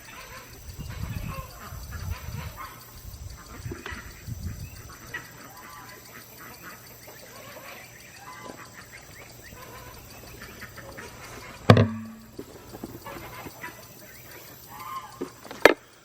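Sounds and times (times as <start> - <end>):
birds calling: 0.0 - 16.0
loud knock: 11.7 - 12.3.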